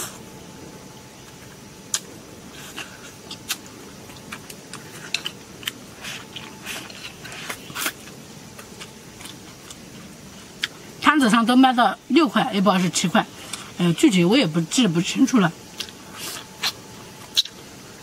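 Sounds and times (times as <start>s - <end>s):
low background noise: 0.0s - 18.0s
chewing and biting: 1.4s - 9.9s, 15.8s - 17.6s.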